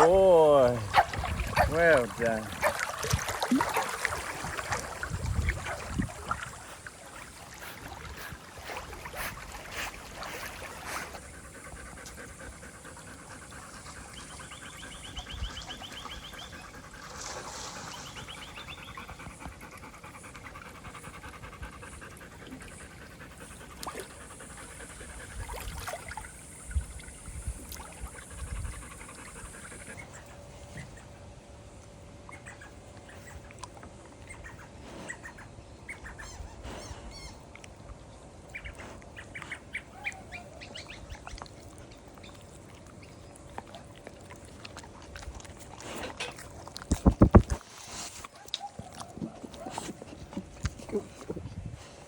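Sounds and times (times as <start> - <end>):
water splashing and dribbling: 0.0 - 19.9, 22.2 - 29.1, 37.5 - 51.6
dog panting: 6.5 - 25.6.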